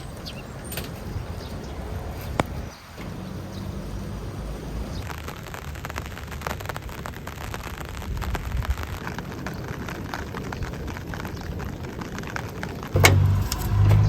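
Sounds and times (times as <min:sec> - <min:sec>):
rain drops hitting: 0:00.0 - 0:14.0
low steady rumble: 0:13.0 - 0:14.0.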